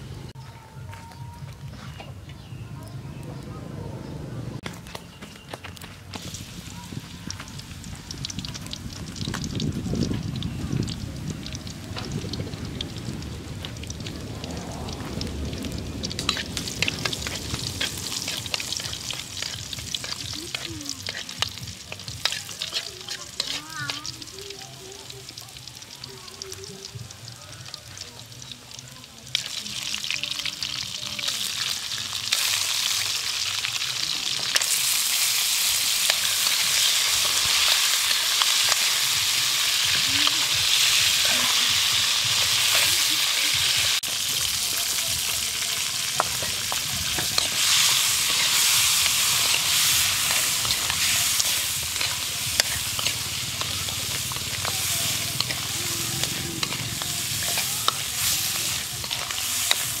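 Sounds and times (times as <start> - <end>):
crabs sizzling in hot oil: 5.4 - 60.0
spatula stirring in wok: 11.6 - 26.5, 29.3 - 60.0.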